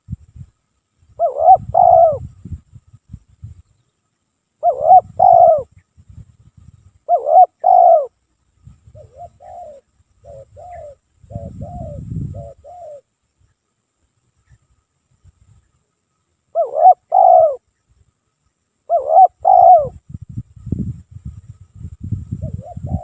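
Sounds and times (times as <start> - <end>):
dove cooing: 1.2 - 2.3, 4.6 - 5.7, 7.0 - 8.2, 8.9 - 13.1, 16.5 - 17.6, 18.9 - 20.0, 22.4 - 23.0.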